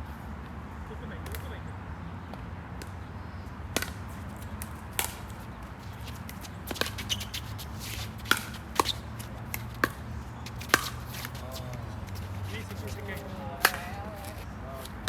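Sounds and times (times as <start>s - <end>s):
ball bouncing on court: 8.2s - 15.0s.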